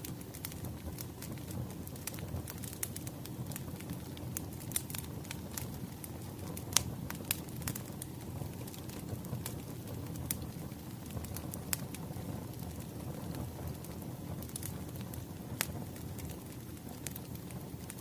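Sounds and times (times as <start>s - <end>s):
burning logs rumbling: 0.0s - 18.0s
fire pops and snaps: 0.0s - 18.0s.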